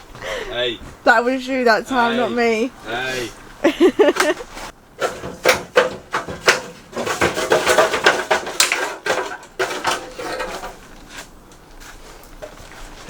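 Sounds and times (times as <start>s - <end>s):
metal tools clattering: 3.9s - 11.2s.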